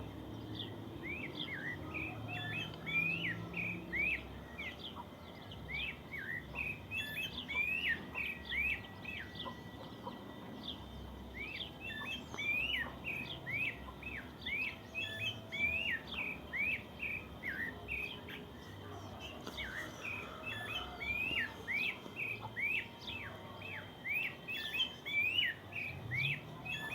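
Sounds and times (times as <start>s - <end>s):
birds chirping: 0.0s - 26.9s.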